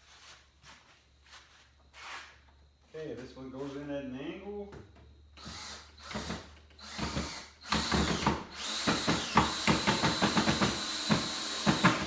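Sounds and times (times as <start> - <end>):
power drill motor whining: 5.4 - 12.0.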